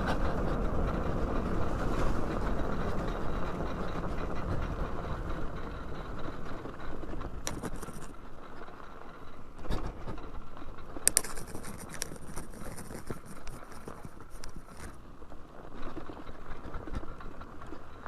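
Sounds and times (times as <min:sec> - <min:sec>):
wind rush: 0:00.0 - 0:08.2
dirt bike tyres rolling on trail: 0:00.0 - 0:18.0
short rattles: 0:00.0 - 0:18.0.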